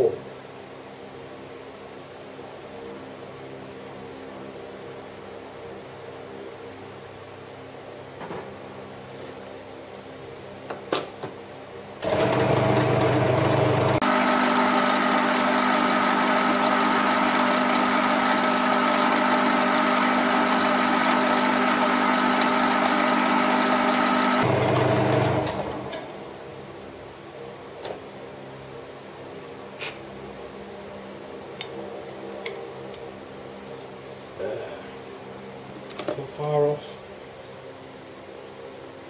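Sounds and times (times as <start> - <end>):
metal lathe running: 12.0 - 26.1.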